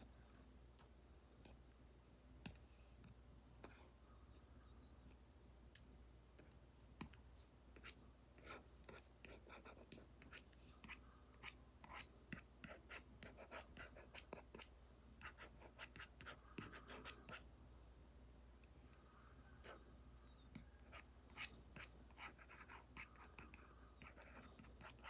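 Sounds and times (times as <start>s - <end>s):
stylus tapping and scratching on screen: 5.8s - 17.5s, 18.6s - 25.0s.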